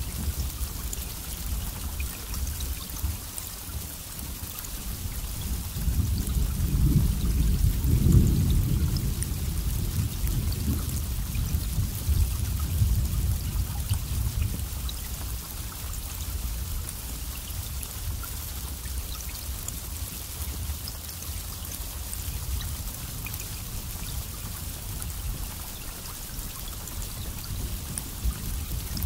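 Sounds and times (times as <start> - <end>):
steady rain falling: 0.0 - 29.0
low rumble of thunder: 4.3 - 17.1, 21.9 - 29.0.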